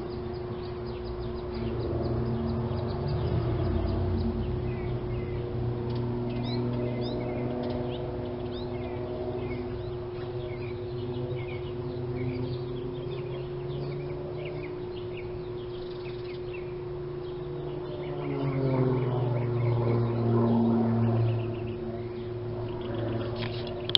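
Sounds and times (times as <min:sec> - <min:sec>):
birds chirping: 0:00.0 - 0:23.9
steady low hum: 0:00.0 - 0:23.9.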